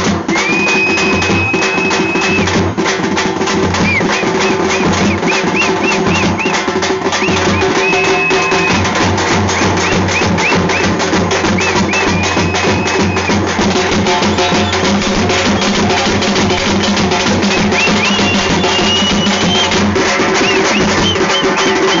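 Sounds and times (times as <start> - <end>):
frame drums beating fast rhythm: 0.0 - 22.0
high piping tone: 9.7 - 22.0.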